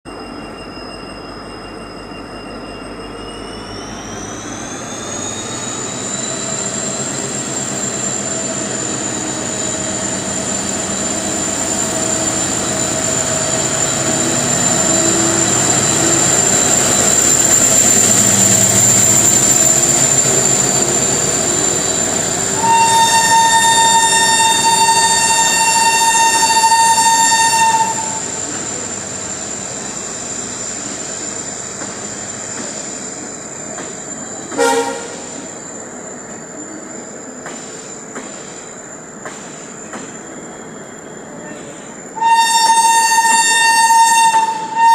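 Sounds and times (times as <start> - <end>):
train high whine: 0.0 - 44.9
train rumbling past: 0.1 - 44.9
train horn blast: 22.5 - 28.3, 34.5 - 35.4, 42.2 - 44.9.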